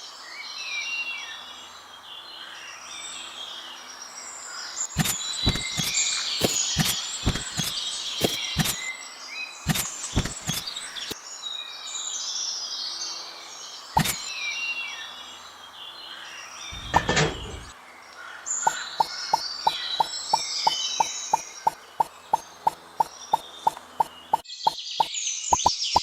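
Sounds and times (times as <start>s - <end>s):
birds chirping: 4.8s - 8.9s, 9.7s - 11.2s, 16.6s - 17.7s, 18.5s - 26.0s
sharp clicks: 5.0s - 8.8s, 9.7s - 11.2s, 14.0s - 14.2s
short muffled thud: 16.8s - 17.7s.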